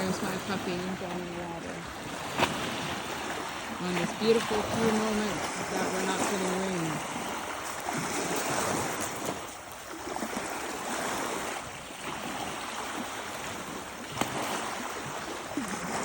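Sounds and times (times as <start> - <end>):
lake waves washing onto shore: 0.0 - 16.0.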